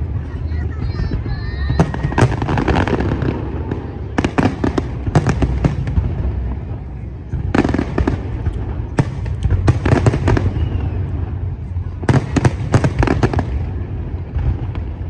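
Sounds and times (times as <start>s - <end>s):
fireworks cracks and bangs: 0.0s - 15.0s.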